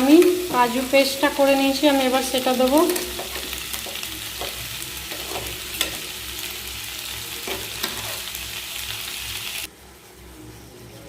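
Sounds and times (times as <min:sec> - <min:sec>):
food sizzling in oil: 0:00.0 - 0:09.7
spoon scraping a pan: 0:02.8 - 0:06.2, 0:07.4 - 0:08.4.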